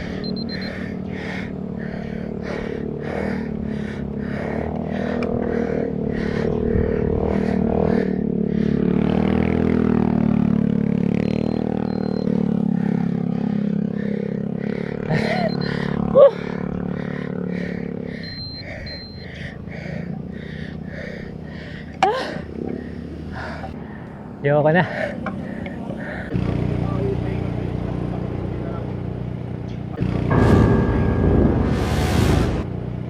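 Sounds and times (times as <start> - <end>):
person panting hard: 0.0 - 9.0, 12.7 - 24.2, 24.8 - 26.4
vehicle engine humming: 0.0 - 33.0.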